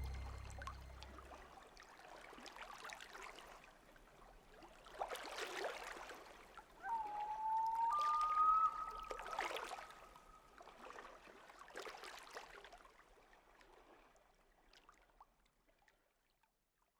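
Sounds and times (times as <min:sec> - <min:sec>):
background music: 0:00.0 - 0:01.3
steady held tone: 0:00.0 - 0:01.4.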